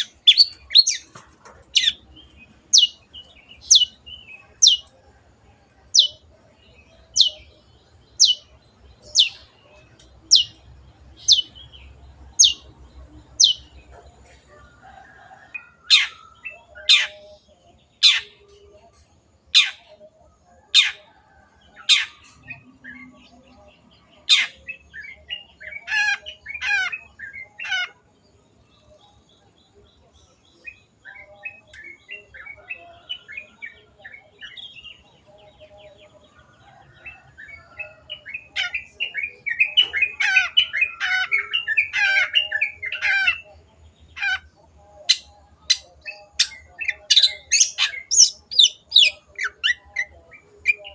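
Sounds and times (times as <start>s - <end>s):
shrike singing: 0.0s - 5.0s, 5.7s - 14.0s, 30.5s - 50.9s.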